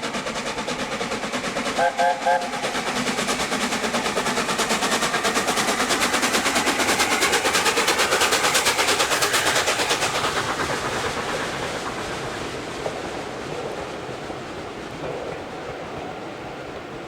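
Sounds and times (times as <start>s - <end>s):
steam locomotive exhaust beats: 0.0s - 17.0s
train rumble: 0.0s - 17.0s.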